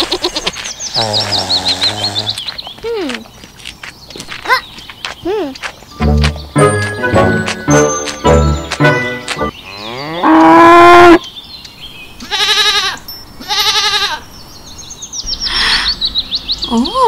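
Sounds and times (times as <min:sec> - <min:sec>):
goat bleats: 0:12.2 - 0:14.2.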